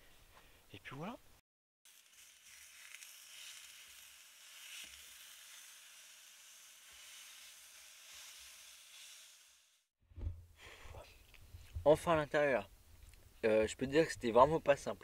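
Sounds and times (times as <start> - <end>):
food sizzling in a pan: 1.8 - 9.9
small crackles: 1.9 - 9.9.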